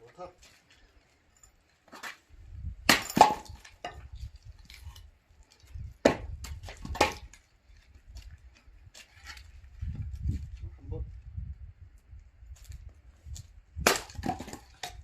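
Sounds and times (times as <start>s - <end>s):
axe chopping firewood: 2.8s - 5.0s, 6.0s - 7.4s, 13.8s - 15.0s.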